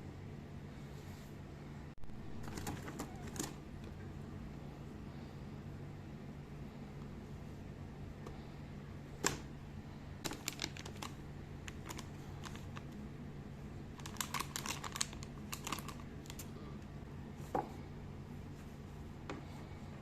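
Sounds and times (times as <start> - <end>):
packaging clicks and rustles: 10.2 - 13.0, 13.9 - 16.5.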